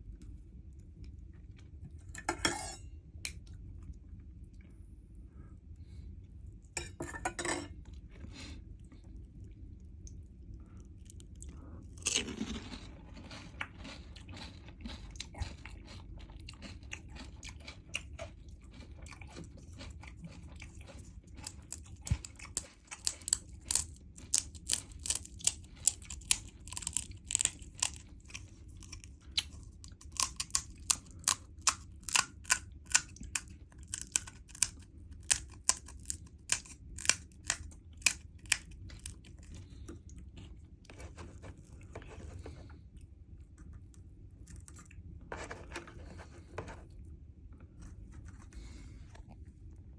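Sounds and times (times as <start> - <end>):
crunchy chewing: 7.9 - 46.9.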